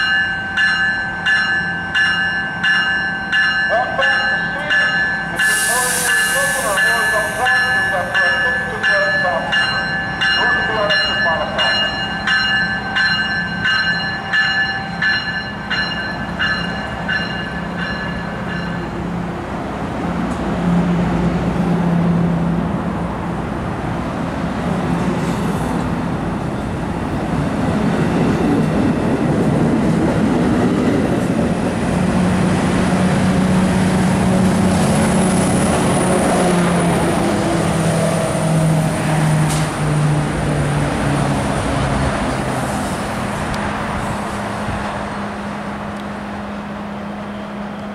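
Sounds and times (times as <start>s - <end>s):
train bell ringing: 0.0s - 19.1s
diesel locomotive engine: 0.0s - 47.9s
train cars rumbling: 0.0s - 47.9s.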